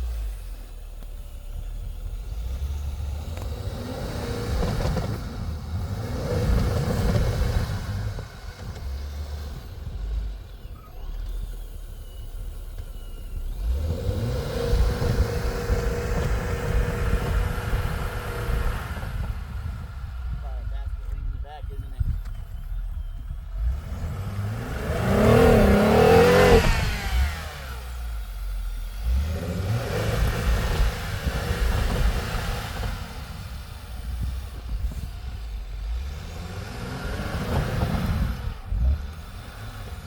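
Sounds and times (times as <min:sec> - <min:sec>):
vehicle engine revving: 0:00.0 - 0:40.0.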